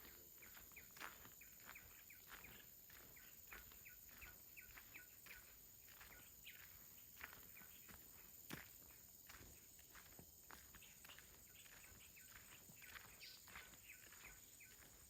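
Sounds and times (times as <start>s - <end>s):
bird chirping: 0.0s - 8.9s, 10.6s - 15.0s
soft footsteps on a path: 0.0s - 15.0s.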